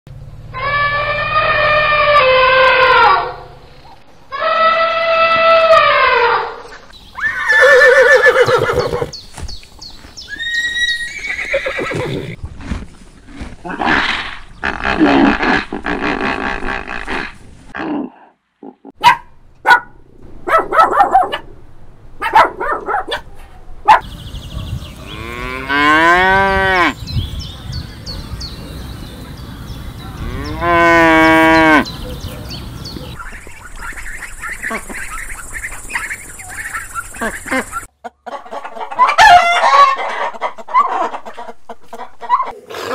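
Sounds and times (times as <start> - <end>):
animal calls: 0.5 - 3.5, 7.2 - 9.2, 30.2 - 37.9
elephant trumpeting: 0.5 - 3.5.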